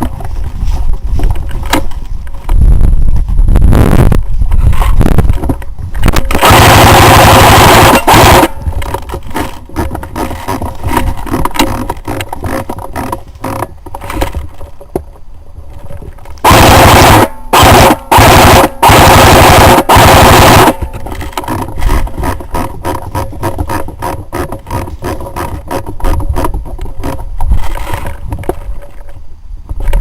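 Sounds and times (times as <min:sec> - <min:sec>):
airsoft gun firing bursts: 0:06.3 - 0:08.6, 0:16.4 - 0:21.0.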